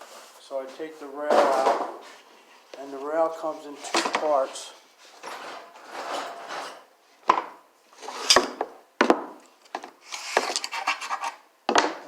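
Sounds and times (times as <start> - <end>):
metal rails scraping cardboard: 8.0 - 8.6, 10.0 - 11.4.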